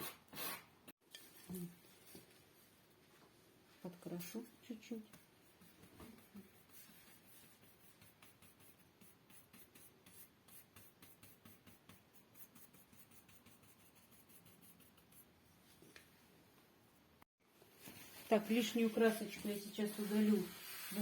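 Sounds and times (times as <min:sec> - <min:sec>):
paintbrush strokes: 0:05.0 - 0:15.9, 0:17.8 - 0:21.0.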